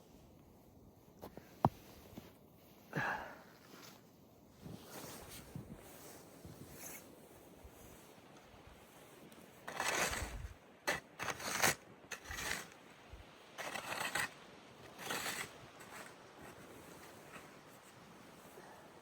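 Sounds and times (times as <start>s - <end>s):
shovel scraping snow: 8.9s - 12.8s, 13.6s - 18.0s.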